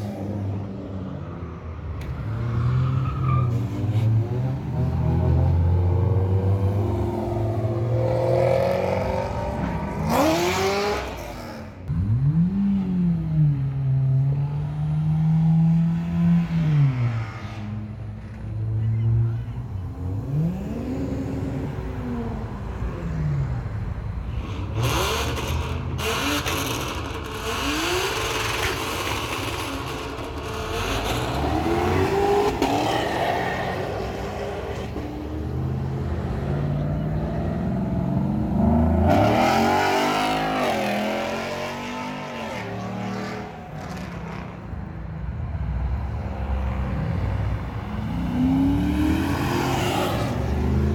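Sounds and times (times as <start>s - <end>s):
car engine revving: 4.6s - 17.8s, 24.6s - 44.9s.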